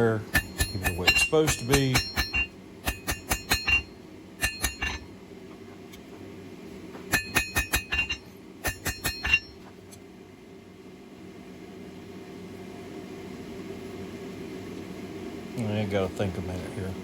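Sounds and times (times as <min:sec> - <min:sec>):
hammer striking steel on anvil: 0:00.0 - 0:05.1, 0:07.1 - 0:09.7.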